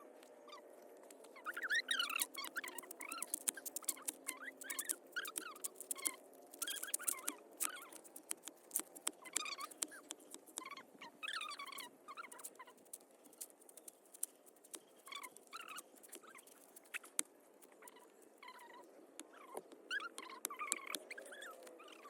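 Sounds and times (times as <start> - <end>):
sharp clicks and taps: 2.2 - 10.7.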